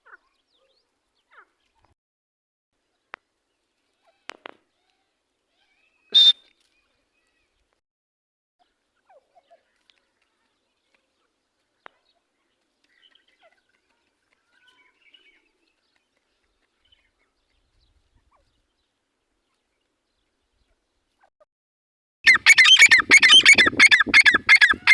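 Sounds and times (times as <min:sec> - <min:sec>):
faint bird chirps: 0:05.6 - 0:06.5, 0:22.3 - 0:24.9
partridge sharp call: 0:06.2 - 0:06.4, 0:22.3 - 0:24.9.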